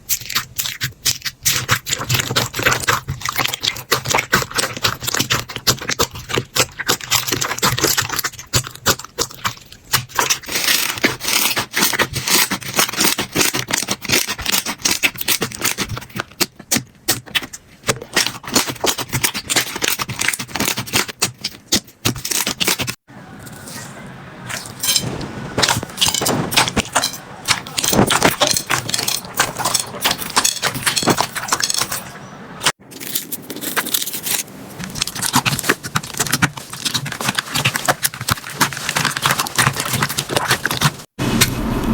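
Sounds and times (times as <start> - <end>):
slime crackling and popping: 33.6 - 41.0.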